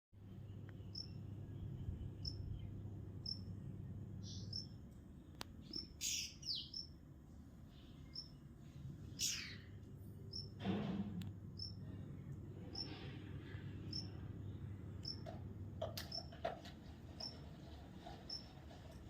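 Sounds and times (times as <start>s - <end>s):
small bird chirping: 0.3s - 3.6s, 4.2s - 7.0s, 7.7s - 10.6s, 11.6s - 11.9s, 12.6s - 13.0s, 13.8s - 14.3s, 15.0s - 15.3s, 16.0s - 16.4s, 18.2s - 18.6s
harsh bird calls: 4.2s - 4.8s, 5.6s - 7.0s, 7.7s - 10.6s, 11.6s - 15.3s.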